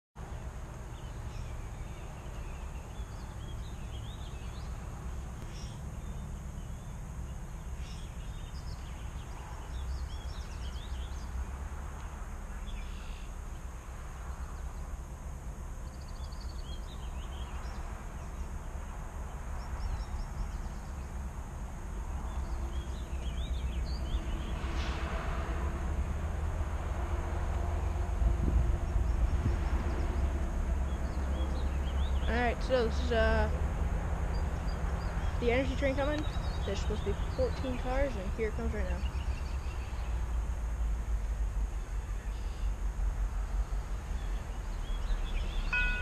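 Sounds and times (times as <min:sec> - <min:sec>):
steady low rumble: 0:00.2 - 0:46.0
small birds chirping: 0:00.8 - 0:13.7, 0:15.8 - 0:21.3, 0:22.1 - 0:24.7, 0:28.8 - 0:33.6, 0:34.3 - 0:40.5, 0:43.4 - 0:46.0.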